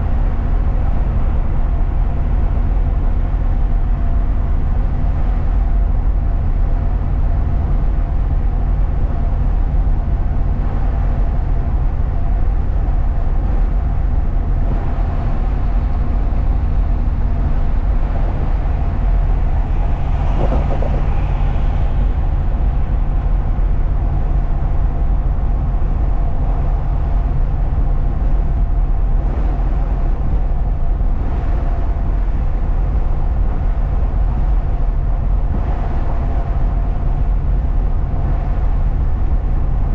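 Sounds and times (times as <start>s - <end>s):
truck engine and road rumble: 0.0s - 39.9s
steady tones: 14.7s - 24.2s
brief higher noise: 19.7s - 22.6s.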